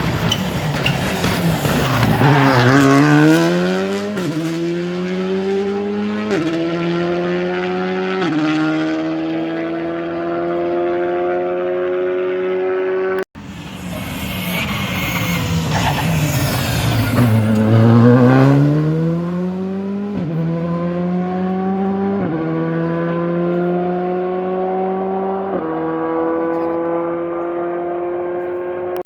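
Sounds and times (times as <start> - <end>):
gear upshifts: 0.0 - 28.4
rally car engine approaching: 0.0 - 29.0
steady engine note: 10.7 - 25.5.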